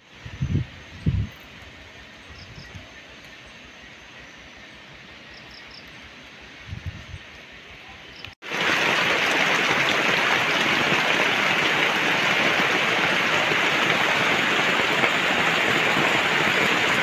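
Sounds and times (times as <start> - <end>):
heavy rain falling: 8.4 - 17.0
runoff splashing onto ground: 8.4 - 17.0.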